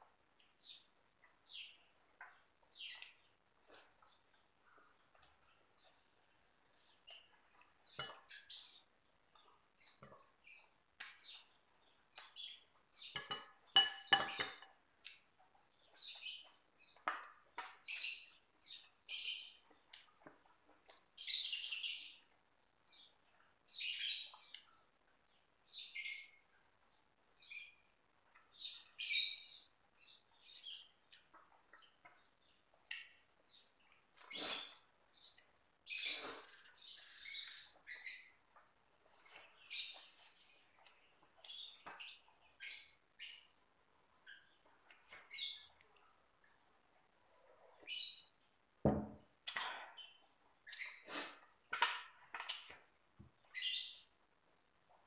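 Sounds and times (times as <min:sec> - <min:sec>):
spoon clinking against bowl: 0:13.2 - 0:14.7.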